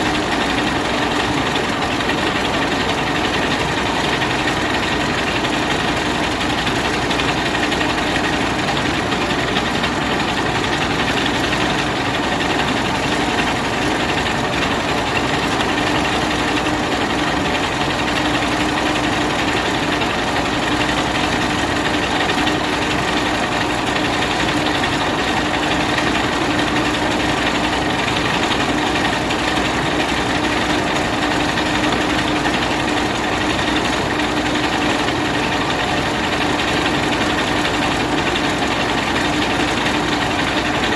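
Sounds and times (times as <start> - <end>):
rice milling machine running: 0.0 - 40.9.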